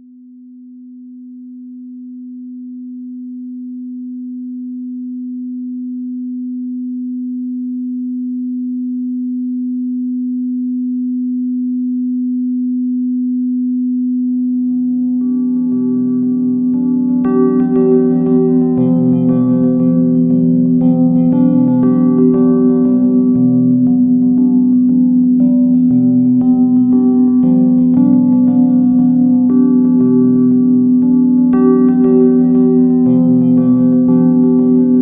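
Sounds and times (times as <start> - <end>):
low electronic sine tone: 0.0 - 35.0
steady drone tones: 14.6 - 35.0.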